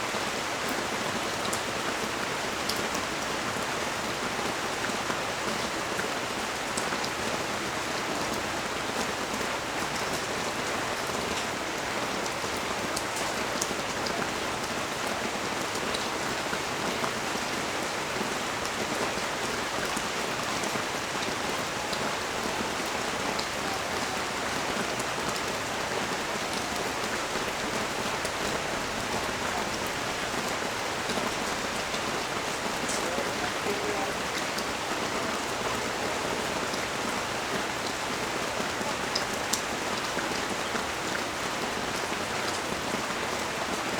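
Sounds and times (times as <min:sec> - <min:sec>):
heavy rain hissing: 0:00.0 - 0:43.9
raindrops ticking: 0:22.8 - 0:35.3.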